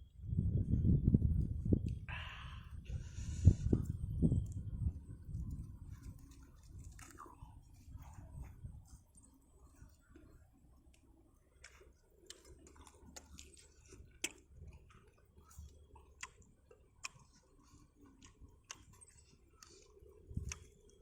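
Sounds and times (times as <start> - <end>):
person chewing crispy fried chicken: 5.8 - 9.2, 10.0 - 21.0.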